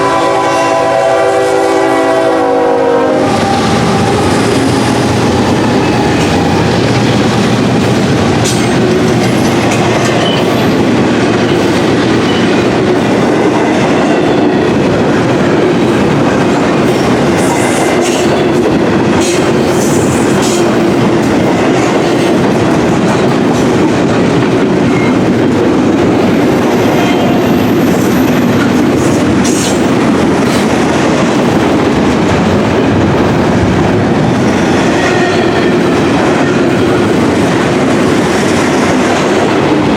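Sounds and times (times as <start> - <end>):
freight train rumbling past: 0.0 - 39.9
wheels clacking over rail joints: 5.0 - 39.9.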